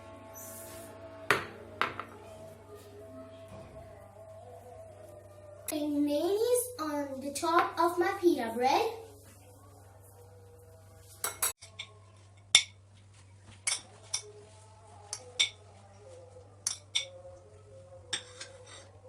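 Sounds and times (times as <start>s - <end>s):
cutlery clinking on dishes: 11.2s - 12.8s, 13.6s - 14.3s, 15.1s - 15.6s, 16.6s - 17.2s, 18.1s - 18.9s.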